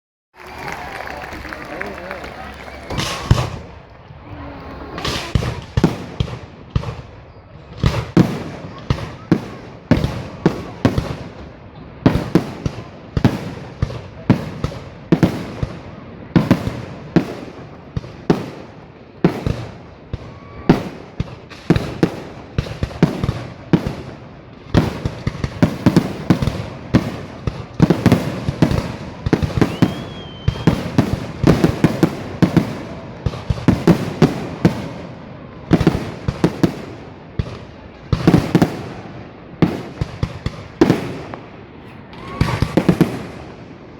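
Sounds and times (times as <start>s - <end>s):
fireworks banging: 0.7s - 43.9s
firework whistle: 2.8s - 3.7s, 29.4s - 31.0s, 41.8s - 43.3s.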